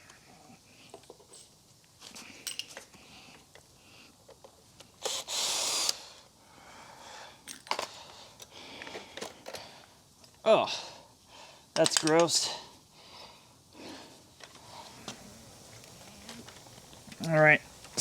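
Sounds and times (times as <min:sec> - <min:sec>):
clicks and knocks of tools: 0:07.5 - 0:10.4, 0:11.8 - 0:12.3.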